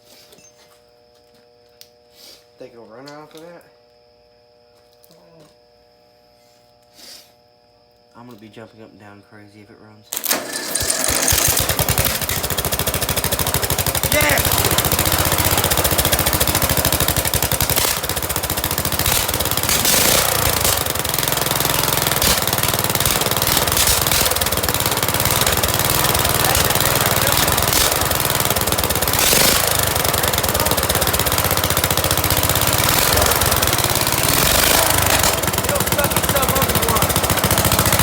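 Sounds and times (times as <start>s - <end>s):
small engine through straight-pipe exhaust: 10.5s - 38.0s.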